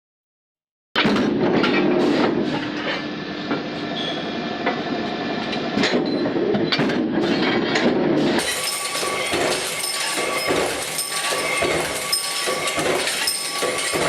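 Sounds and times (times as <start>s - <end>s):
machinery humming: 8.4s - 14.0s.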